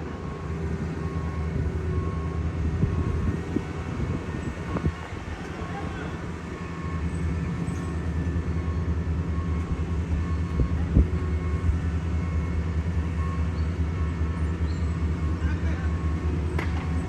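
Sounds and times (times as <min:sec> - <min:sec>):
paving machine engine droning: 0:00.0 - 0:17.0.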